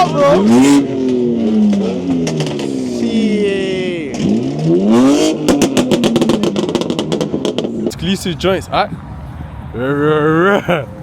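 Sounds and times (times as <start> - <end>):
car engine revving: 0.0 - 8.3
exhaust pops and bangs: 0.7 - 2.9, 4.0 - 8.1.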